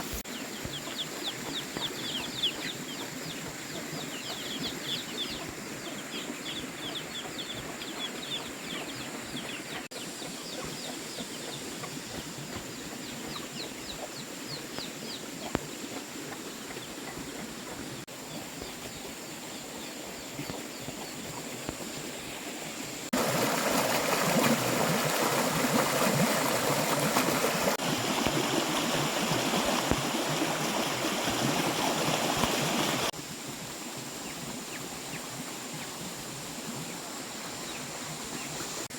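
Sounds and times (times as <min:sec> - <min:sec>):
small birds chirping: 0:00.0 - 0:23.2.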